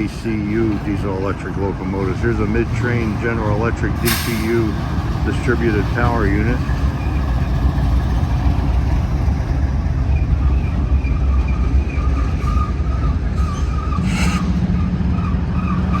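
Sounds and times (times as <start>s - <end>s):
train wheels rumbling on rail: 0.0s - 16.0s
wheels squealing: 0.0s - 16.0s.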